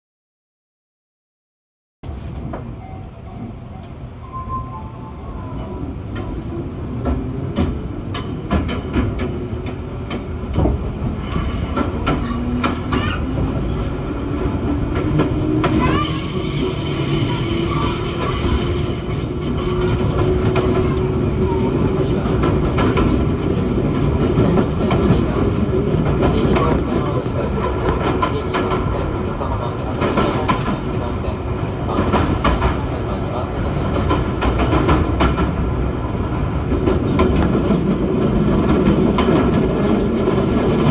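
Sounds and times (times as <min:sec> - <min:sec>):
rail-joint clicks: 0:02.0 - 0:02.8, 0:06.0 - 0:16.2, 0:29.6 - 0:32.9, 0:33.9 - 0:37.9
train wheel rumble: 0:05.2 - 0:40.9
high wheel squeal: 0:15.0 - 0:21.3.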